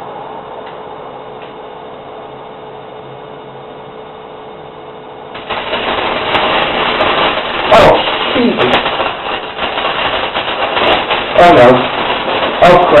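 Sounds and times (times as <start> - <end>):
firework powder fizzing: 5.4 - 13.0.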